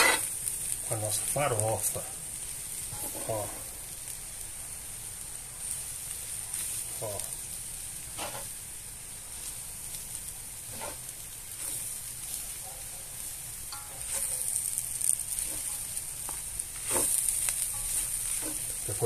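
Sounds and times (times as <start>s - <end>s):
spoon scraping a skillet: 0.0s - 0.4s, 2.8s - 3.7s, 8.1s - 8.6s, 9.3s - 19.0s
food sizzling in a skillet: 0.0s - 19.0s.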